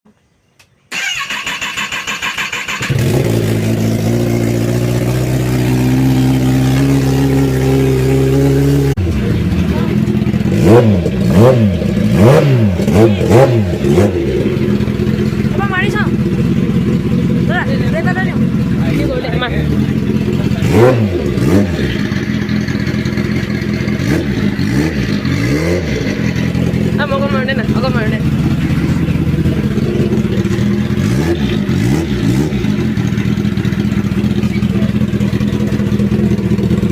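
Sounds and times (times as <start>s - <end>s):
motorcycle starter cranking: 0.9s - 4.0s
motorcycle engine idling: 0.9s - 36.9s.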